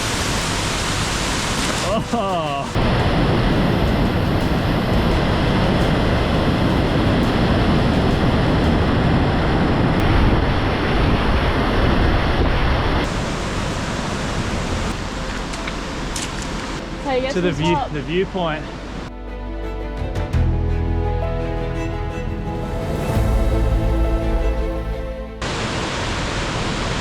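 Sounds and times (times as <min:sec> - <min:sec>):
waterfall rushing: 0:00.0 - 0:16.9, 0:22.6 - 0:27.0.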